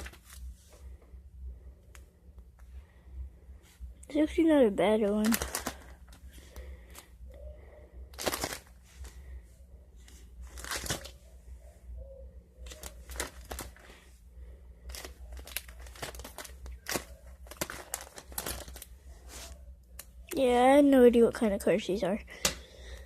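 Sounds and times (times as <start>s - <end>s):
trading cards rustling: 0.0s - 0.6s, 4.4s - 7.2s, 8.0s - 9.3s, 10.0s - 11.4s, 12.6s - 14.1s, 14.7s - 20.5s
faint low hum: 0.0s - 23.0s.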